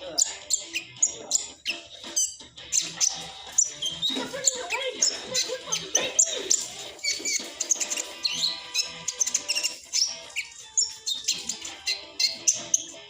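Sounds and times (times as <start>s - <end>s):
bird chattering twitter: 0.0s - 13.0s.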